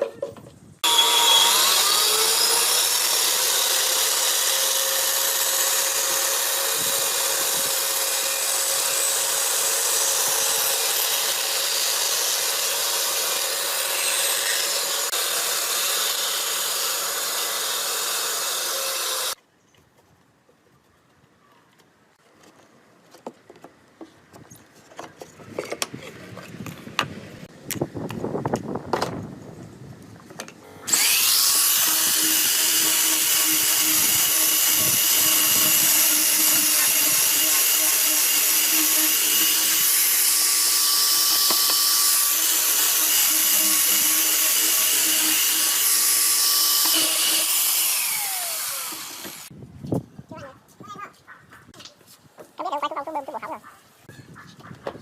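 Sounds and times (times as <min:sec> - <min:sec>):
electric power tool whining: 0:00.8 - 0:19.4, 0:30.6 - 0:49.5.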